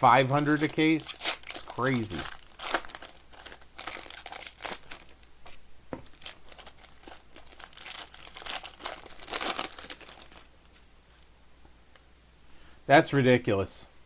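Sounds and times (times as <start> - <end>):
plastic wrapping crinkling and tearing: 0.0 - 10.8.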